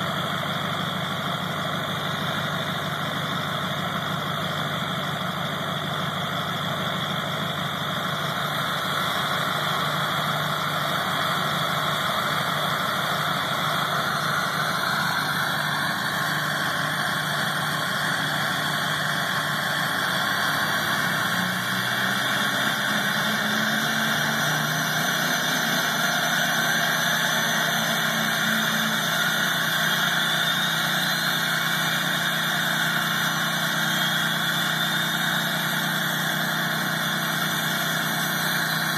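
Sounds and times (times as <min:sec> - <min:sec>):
diesel engine idling: 0:00.0 - 0:38.9
faint rising whistles: 0:13.6 - 0:38.9.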